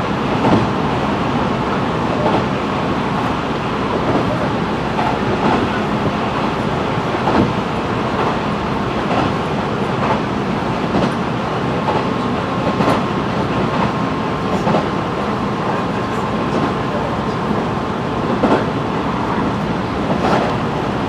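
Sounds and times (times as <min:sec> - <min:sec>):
rail joint clicks: 0:00.0 - 0:21.0
train wheels rumbling on rail: 0:00.0 - 0:21.0.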